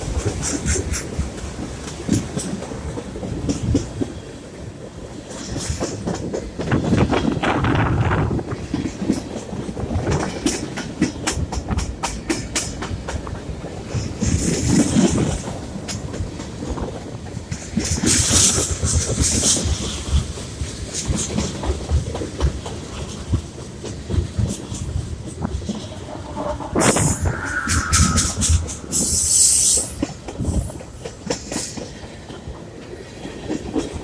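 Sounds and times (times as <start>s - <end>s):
train low rumble: 0.0s - 34.0s
high-pitched bursts: 25.8s - 30.8s.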